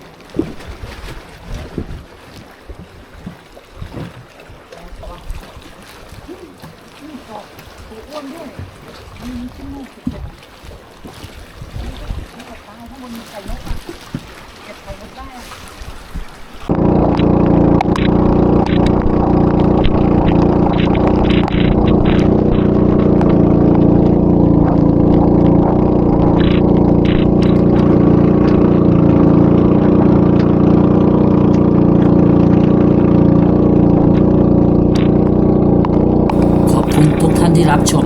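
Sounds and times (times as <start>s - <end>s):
boat engine droning: 16.7s - 38.0s.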